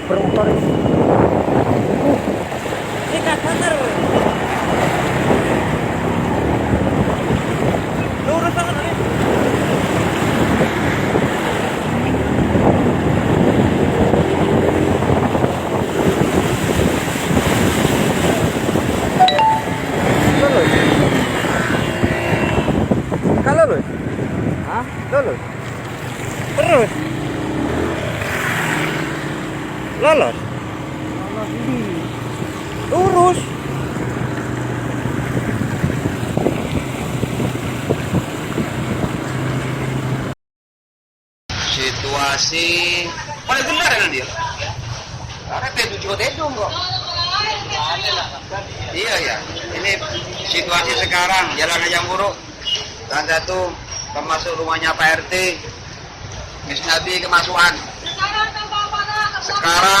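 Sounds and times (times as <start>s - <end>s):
wind buffeting microphone: 0.0s - 19.2s, 19.8s - 40.3s
water sloshing and splashing: 0.0s - 40.3s
floodwater rushing: 0.0s - 40.4s.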